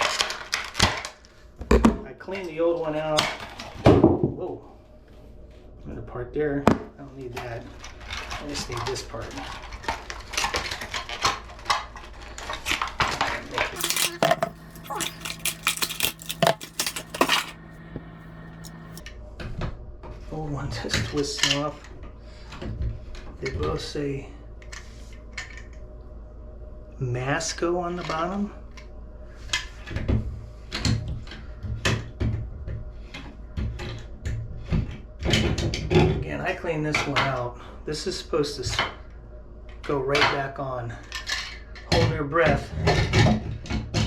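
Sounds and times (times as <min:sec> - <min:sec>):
faint low hum: 0:13.8 - 0:19.0
plastic parts clicking and clattering: 0:13.8 - 0:19.0.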